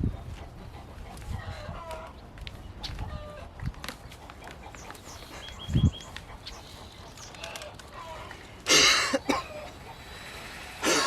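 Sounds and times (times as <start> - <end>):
wind rumble on microphone: 0.0 - 4.0, 5.3 - 6.3.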